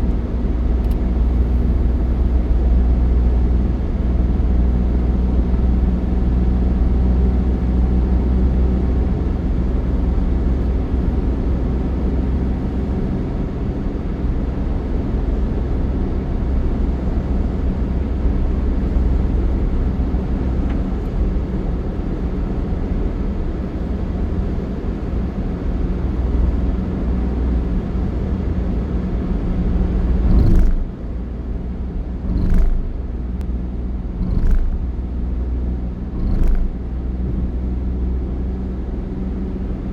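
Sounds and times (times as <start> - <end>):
road vehicle rumble: 0.0 - 39.9
loud bumps: 30.3 - 31.0, 32.3 - 33.4, 34.2 - 34.9, 36.1 - 37.7.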